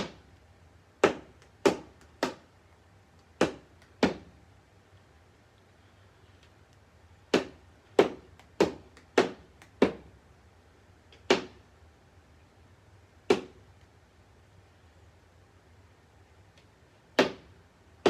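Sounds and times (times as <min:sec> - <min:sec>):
ball hitting hard surface: 0:00.0 - 0:00.3, 0:01.0 - 0:02.4, 0:03.4 - 0:04.4, 0:07.3 - 0:10.1, 0:11.2 - 0:11.6, 0:13.3 - 0:13.6, 0:17.2 - 0:17.5.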